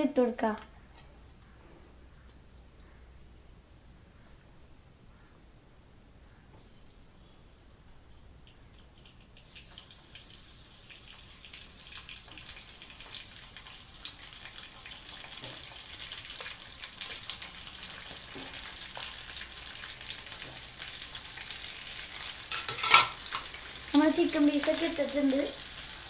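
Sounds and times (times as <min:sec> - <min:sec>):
chicken frying with crackles: 0:08.3 - 0:26.0.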